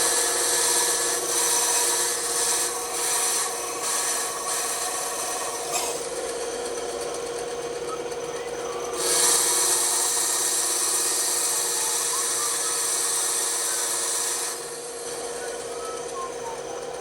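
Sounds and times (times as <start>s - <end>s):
saw blade cutting wood: 0.0s - 6.2s, 9.0s - 15.4s
bandsaw motor humming: 0.0s - 17.0s.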